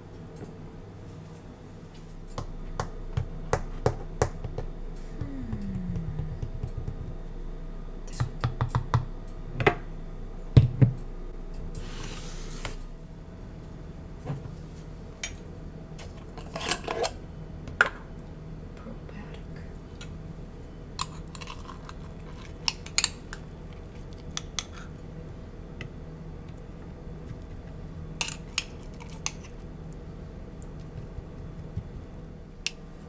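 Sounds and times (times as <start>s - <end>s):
kitchen items tapping and clicking: 2.3s - 7.4s, 8.1s - 9.8s.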